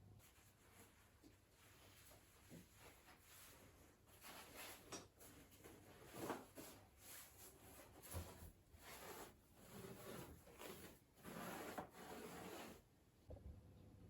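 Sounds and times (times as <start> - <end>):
brush scrubbing: 5.9 - 12.8.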